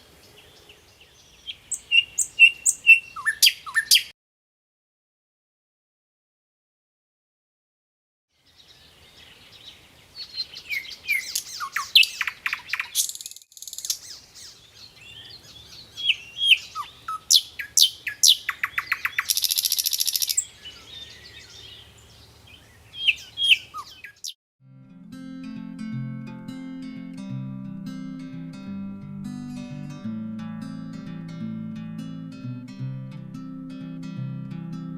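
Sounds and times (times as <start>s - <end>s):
birds singing and calling: 0.2s - 4.1s, 8.5s - 24.4s.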